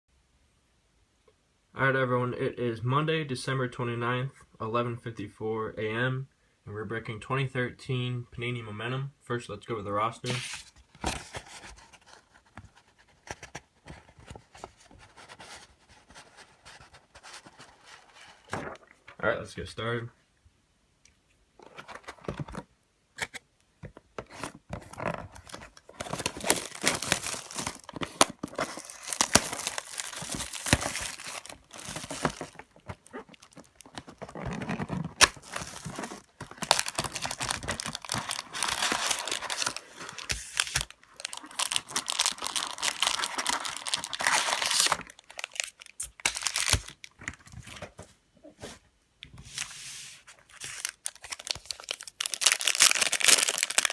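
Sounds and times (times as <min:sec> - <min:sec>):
packaging tearing and crinkling: 0:24.3 - 0:47.4, 0:50.5 - 0:53.9.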